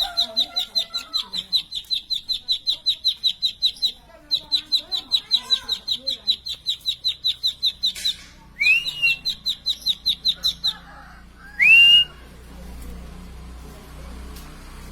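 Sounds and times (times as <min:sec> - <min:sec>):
bird singing high chirps: 0:00.0 - 0:10.8
bird rasping call: 0:00.0 - 0:12.2.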